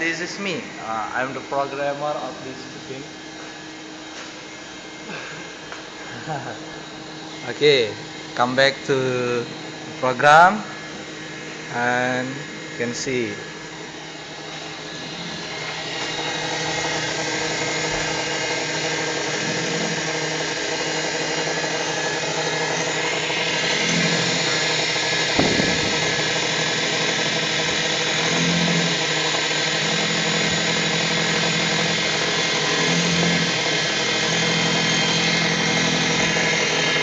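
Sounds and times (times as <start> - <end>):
milling machine spindle whine: 0.0 - 37.0
low hum: 22.0 - 30.6
sharp knock: 25.4 - 26.6.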